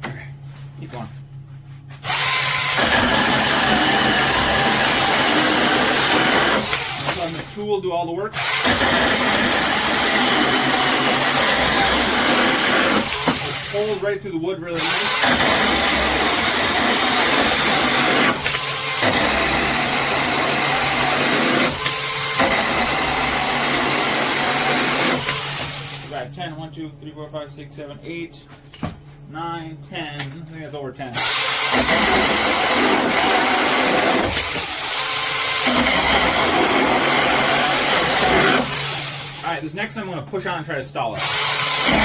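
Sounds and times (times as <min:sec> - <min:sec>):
electric chainsaw cutting wood: 0:02.0 - 0:07.6, 0:08.4 - 0:14.1, 0:14.8 - 0:26.2, 0:31.2 - 0:39.5, 0:41.2 - 0:42.0.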